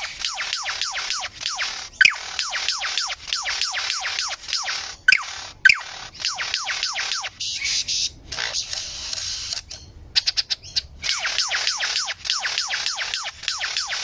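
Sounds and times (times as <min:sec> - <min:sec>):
bird whistling down-sweeping calls: 0:00.0 - 0:08.2, 0:10.2 - 0:14.0
hissy clicks: 0:08.3 - 0:09.8.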